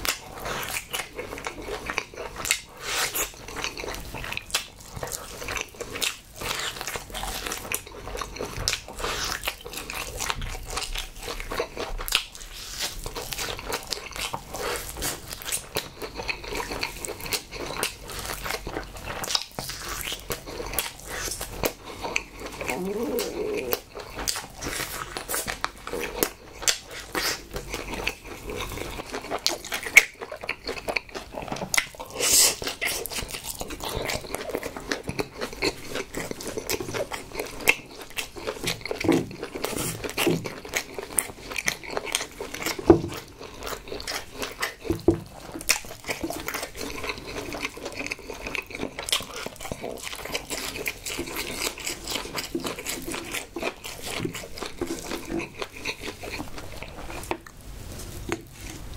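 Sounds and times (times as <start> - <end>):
close chewing and biting: 0.0 - 58.9.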